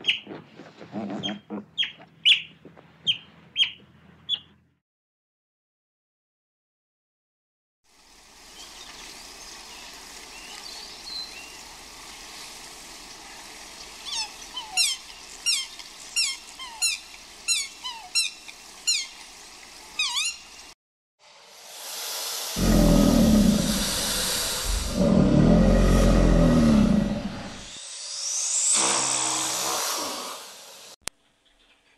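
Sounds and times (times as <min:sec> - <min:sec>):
outdoor background noise: 0:00.0 - 0:04.8, 0:07.9 - 0:31.9
animal squeaky calls: 0:01.0 - 0:02.5, 0:14.0 - 0:19.2, 0:20.0 - 0:20.5.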